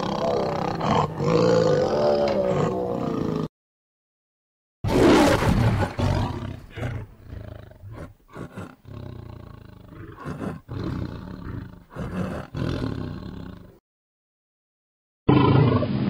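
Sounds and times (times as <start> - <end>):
tiger growling: 0.0 - 3.5, 4.9 - 13.8
tiger roaring: 0.0 - 3.5, 4.9 - 13.8.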